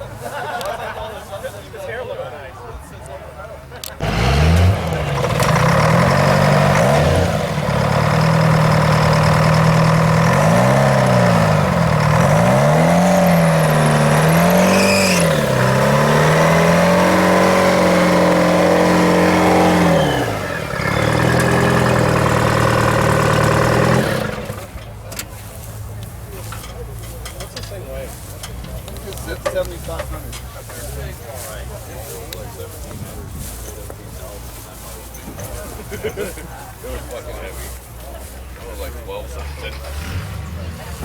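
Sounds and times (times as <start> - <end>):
diesel engine revving: 3.8 - 26.0, 36.6 - 41.0.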